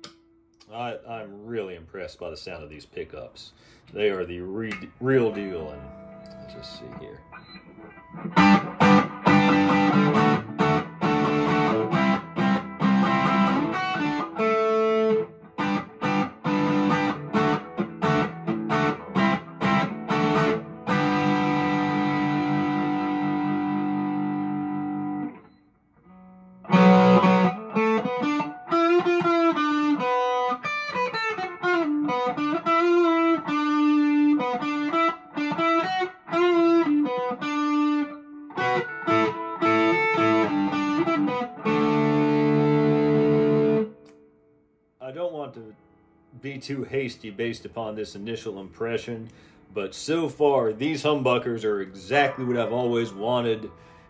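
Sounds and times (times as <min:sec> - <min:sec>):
electric guitar lead lines: 0:03.9 - 0:54.0
overdriven electric guitar chords: 0:04.6 - 0:44.8, 0:49.2 - 0:49.8, 0:51.8 - 0:54.0.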